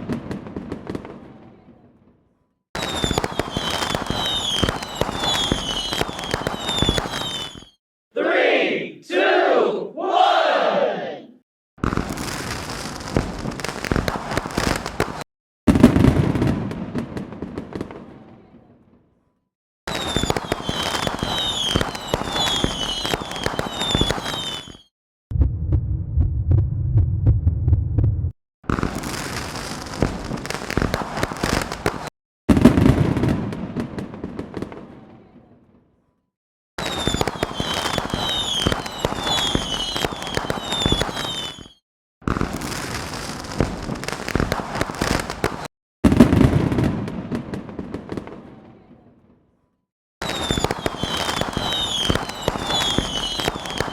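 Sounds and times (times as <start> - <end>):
falling whistles: 2.8 - 7.8, 19.9 - 24.9, 36.8 - 41.8, 50.2 - 53.9.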